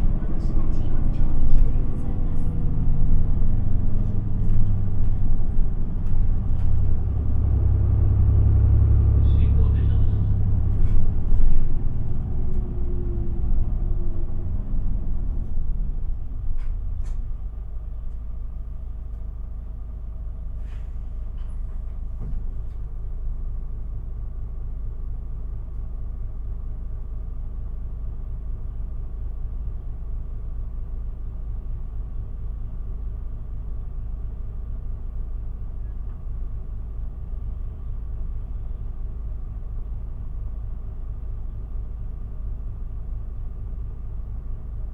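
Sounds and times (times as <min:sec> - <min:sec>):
bus engine idling: 0:00.0 - 0:44.9.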